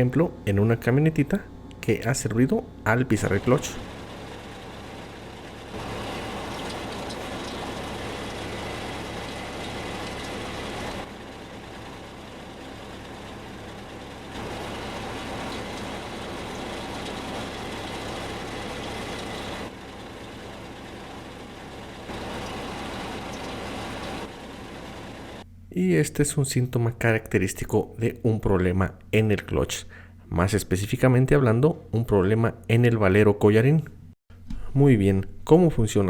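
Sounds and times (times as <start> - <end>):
clutch bearing hum: 0.0 - 25.6
truck engine idling: 2.9 - 25.5.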